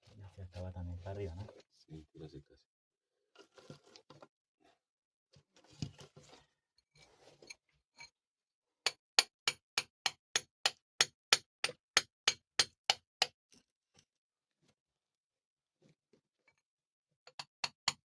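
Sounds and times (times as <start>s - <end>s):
faint rustling and handling: 3.4s - 4.3s, 5.4s - 7.9s.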